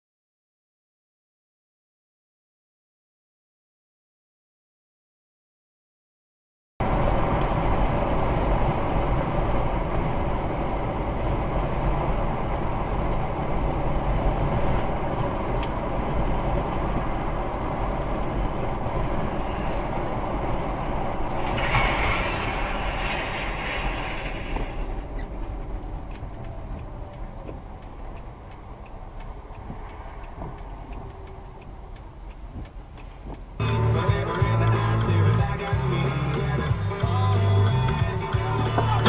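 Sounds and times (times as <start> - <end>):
moving vehicle rumble: 6.8 - 39.0
hissing noise: 21.1 - 26.0.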